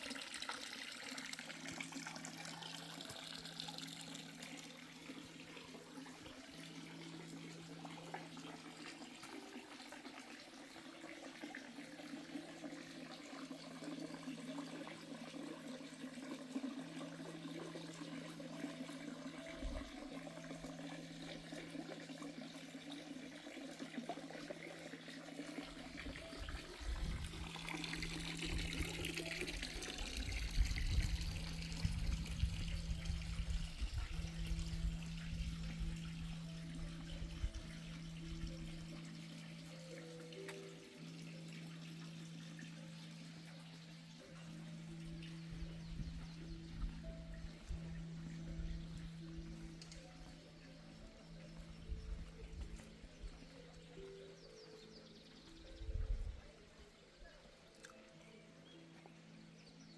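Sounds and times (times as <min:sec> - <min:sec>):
water trickling and splashing: 0:00.0 - 0:59.9
low steady hum: 0:25.4 - 0:54.1.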